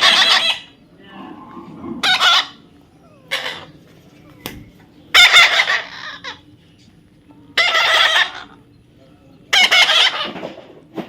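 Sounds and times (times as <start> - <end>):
parrot squawking: 0.0 - 0.8, 2.0 - 3.8, 5.1 - 6.5, 7.6 - 8.6, 9.5 - 10.4.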